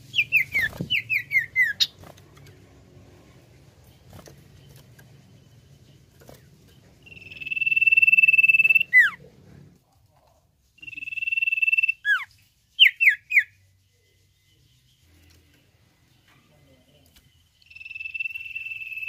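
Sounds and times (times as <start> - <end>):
bird whistling: 0.0 - 2.0, 7.0 - 9.2, 10.8 - 13.5, 17.7 - 19.0.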